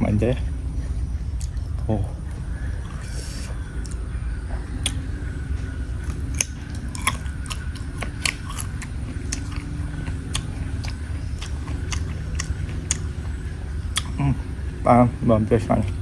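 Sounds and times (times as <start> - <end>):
steady low rumble: 0.0 - 16.0
chewing crunchy raw fruit: 1.4 - 1.8, 4.8 - 5.2, 6.0 - 14.4.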